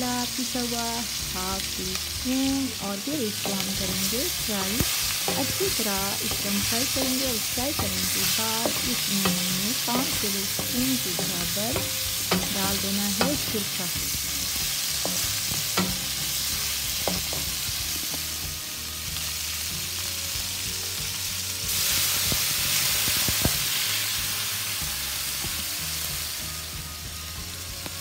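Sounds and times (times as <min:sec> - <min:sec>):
chicken sizzling in butter: 0:00.0 - 0:28.0
wooden spatula stirring and tapping: 0:03.4 - 0:16.4.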